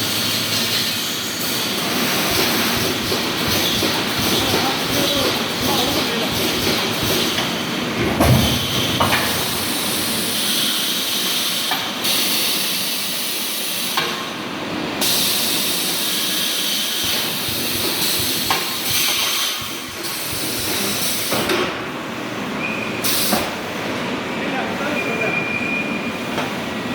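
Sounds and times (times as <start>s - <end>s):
steady machine noise: 0.0s - 13.2s, 14.7s - 22.6s
sharp machine knock: 1.9s - 11.1s, 16.9s - 21.8s
welding hiss: 15.0s - 21.6s.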